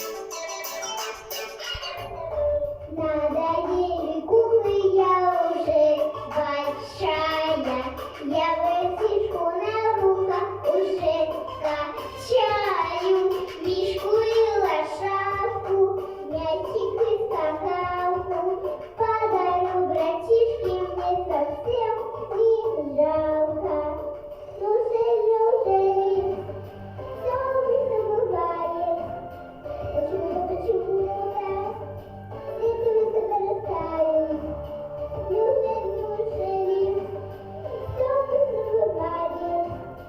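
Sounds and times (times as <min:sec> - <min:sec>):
girl singing: 0:00.0 - 0:40.0
instrumental accompaniment: 0:00.0 - 0:40.0.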